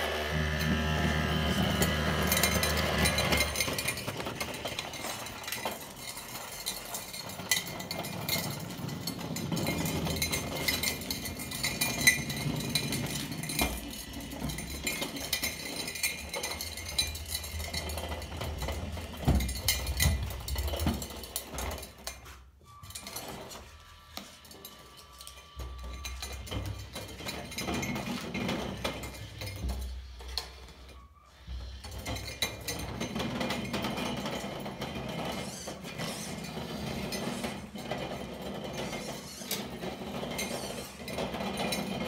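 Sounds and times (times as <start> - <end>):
small hard objects clinking: 0.2 - 22.3.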